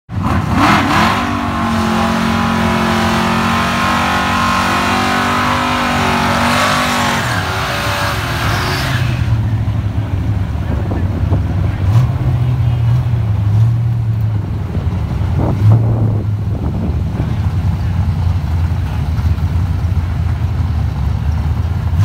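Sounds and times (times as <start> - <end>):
car engines revving high: 0.1 - 22.0.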